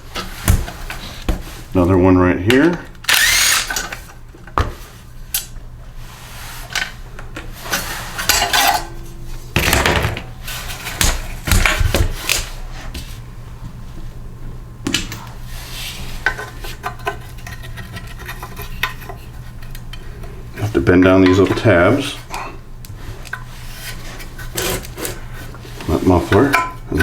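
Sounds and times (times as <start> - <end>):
metal tools clinking and clattering: 8.2 - 9.0.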